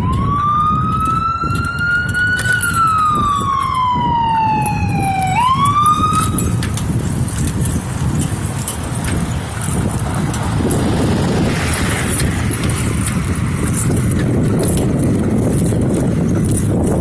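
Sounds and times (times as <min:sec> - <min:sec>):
siren wailing: 0:00.0 - 0:06.6
vehicle and road noise: 0:00.0 - 0:17.0.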